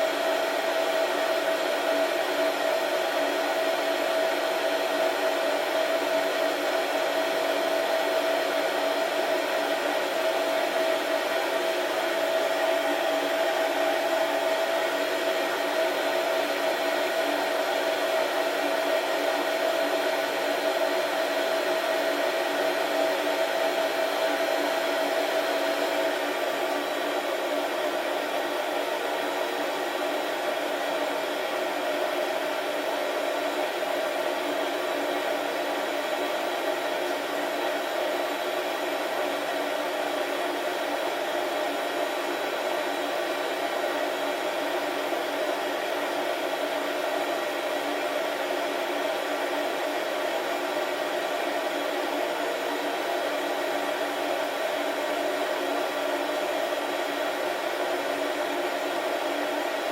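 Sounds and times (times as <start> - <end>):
coffee roaster fan whooshing: 0.0 - 31.1.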